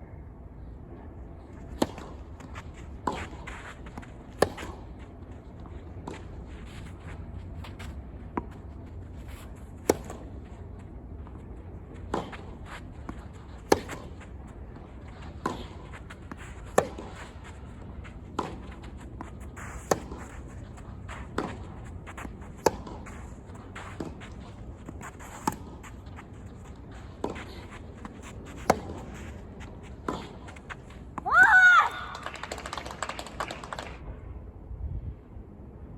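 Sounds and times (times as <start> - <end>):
footsteps: 1.5 - 31.3
tennis ball hit with rackets: 1.8 - 5.0, 9.8 - 10.4, 12.0 - 17.5, 18.1 - 31.2
ball bouncing: 18.3 - 31.3.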